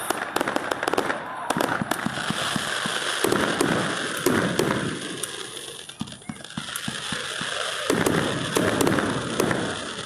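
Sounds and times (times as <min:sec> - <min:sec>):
fireworks crackling and popping: 0:00.0 - 0:10.0.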